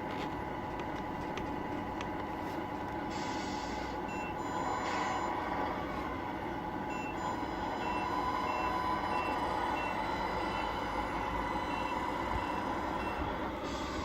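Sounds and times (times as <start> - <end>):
truck engine sound: 0.0 - 14.0
short reversing beeps: 4.1 - 5.4, 6.9 - 10.8.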